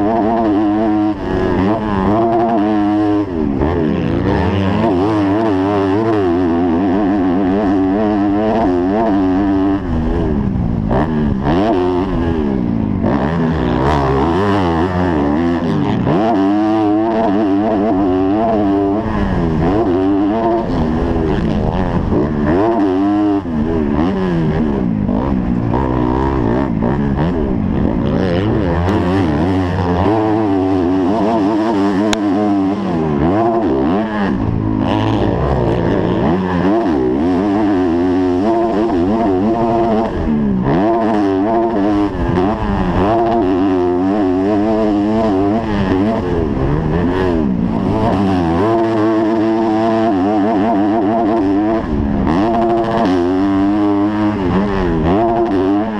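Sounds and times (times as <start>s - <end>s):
motocross bike engine revving: 0.0s - 55.9s.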